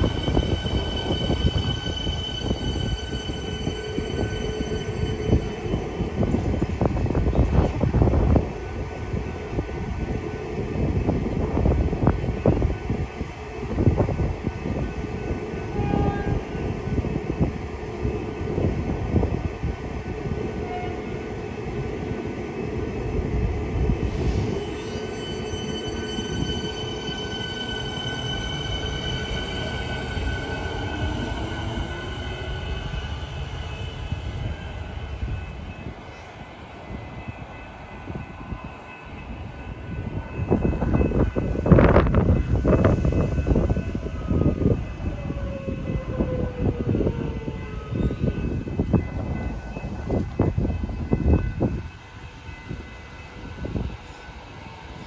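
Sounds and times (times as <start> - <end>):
train wheels rumbling on rails: 0.0 - 55.0
high whine from traction equipment: 23.8 - 35.9
lower whine rising in pitch: 24.0 - 35.2.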